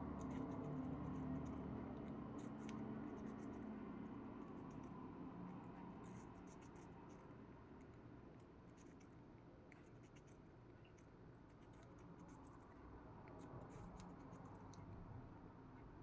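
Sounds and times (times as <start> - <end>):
bird pecking and nibbling: 0.0 - 15.1.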